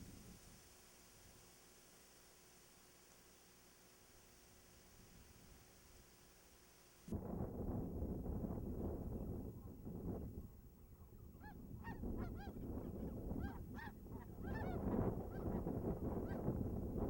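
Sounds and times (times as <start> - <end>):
wind rumble on microphone: 7.1 - 17.0.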